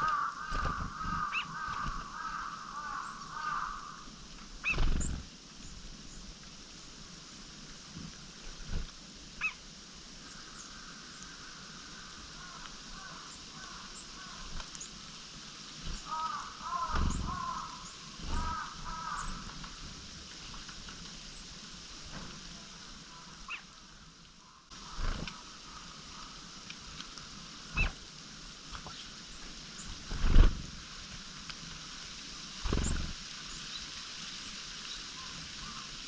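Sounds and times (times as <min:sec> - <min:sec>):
harsh chattering bird calls: 0:00.0 - 0:06.2, 0:15.8 - 0:19.8, 0:23.1 - 0:23.8, 0:32.6 - 0:33.9
thin high bird calls: 0:00.0 - 0:06.3, 0:09.4 - 0:09.6, 0:15.8 - 0:19.8, 0:23.0 - 0:26.5, 0:27.6 - 0:28.0, 0:32.6 - 0:36.0.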